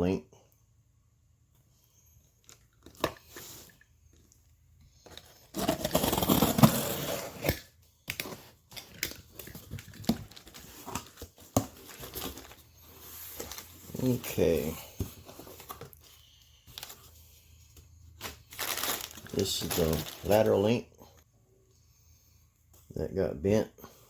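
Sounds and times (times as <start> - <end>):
cardboard tearing and crinkling: 5.4 - 14.7, 18.2 - 20.5.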